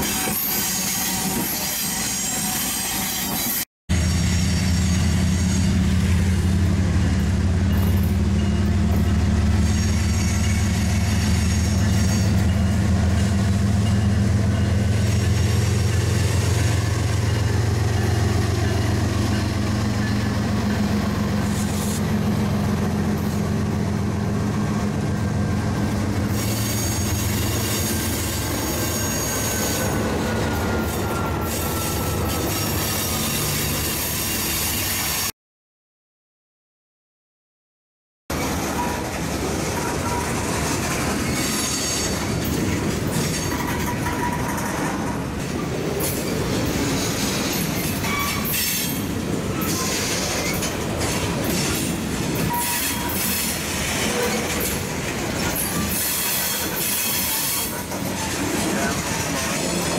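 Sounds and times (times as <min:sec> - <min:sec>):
diesel locomotive engine drone: 0:00.0 - 0:35.3, 0:38.3 - 0:59.9.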